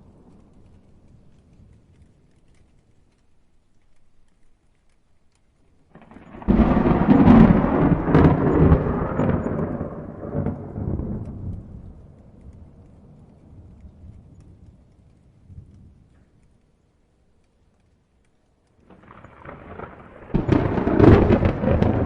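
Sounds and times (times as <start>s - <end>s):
thunder rumbling and cracking: 5.9s - 16.4s, 18.8s - 22.0s.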